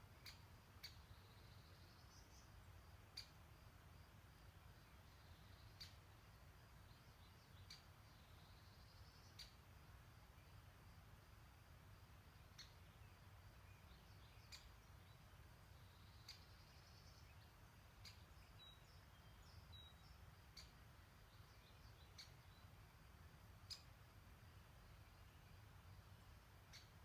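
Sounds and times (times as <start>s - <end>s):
faint high ticks: 0.2s - 1.0s, 3.1s - 3.4s, 5.7s - 6.0s, 7.6s - 7.9s, 8.9s - 9.6s, 12.5s - 12.8s, 14.4s - 14.8s, 16.1s - 17.2s, 18.0s - 18.3s, 20.5s - 20.9s, 22.1s - 22.4s, 23.6s - 24.0s, 26.6s - 27.0s
distant bird chirps: 0.2s - 10.7s, 12.1s - 27.0s.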